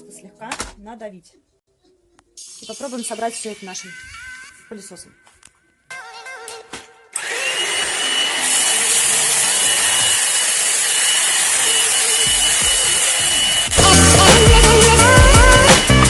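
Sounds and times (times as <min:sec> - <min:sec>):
high-pitched motor whine: 0:07.2 - 0:15.6
stick vacuum cleaner running: 0:07.2 - 0:16.0.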